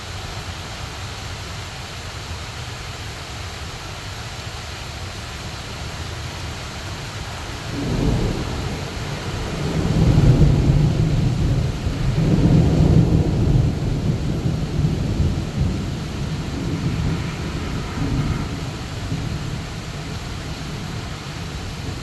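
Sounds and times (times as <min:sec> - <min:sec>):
heavy rain: 0:00.0 - 0:22.0
thunder rumbling: 0:07.1 - 0:22.0.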